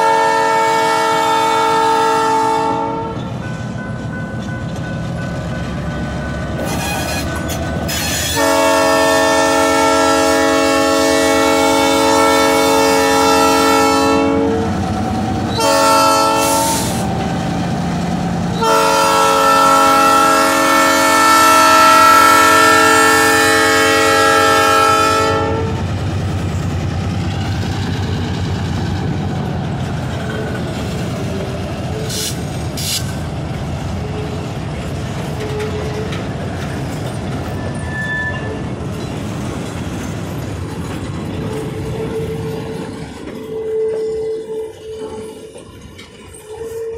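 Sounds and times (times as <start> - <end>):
locomotive air horn: 0.0 - 3.3, 6.6 - 7.3, 7.9 - 14.8, 15.5 - 17.1, 18.5 - 25.9, 31.2 - 33.1, 43.4 - 45.5, 46.5 - 46.9
freight train rumble and wheel clatter: 0.0 - 46.9.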